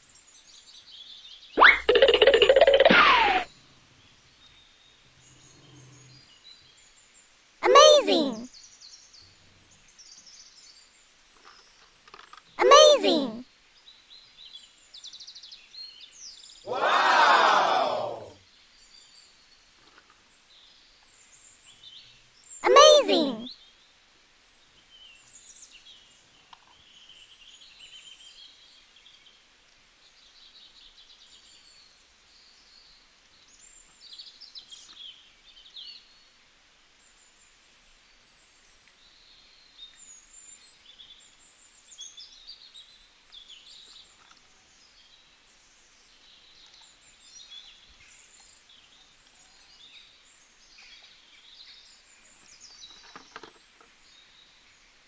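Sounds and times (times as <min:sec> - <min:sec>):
plastic toys clicking: 0:01.7 - 0:02.9.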